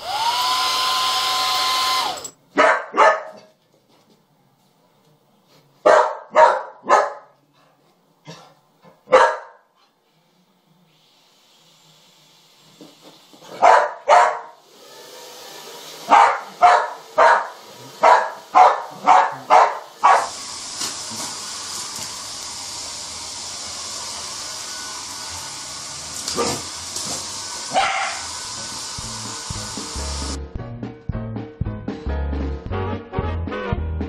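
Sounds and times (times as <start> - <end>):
hair dryer hissing: 0.0 - 2.3, 10.9 - 13.6, 14.5 - 30.4
dog barking sharply: 2.6 - 3.5, 5.9 - 7.3, 9.1 - 9.6, 13.6 - 14.6, 16.1 - 20.3, 27.7 - 28.3.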